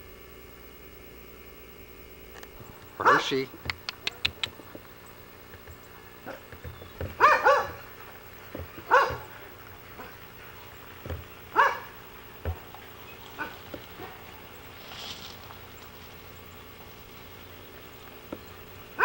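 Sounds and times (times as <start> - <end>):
dog barking: 3.0 - 4.6, 6.2 - 7.9, 8.5 - 10.5, 11.5 - 12.0, 13.3 - 14.4
dull thumps: 3.5 - 14.7.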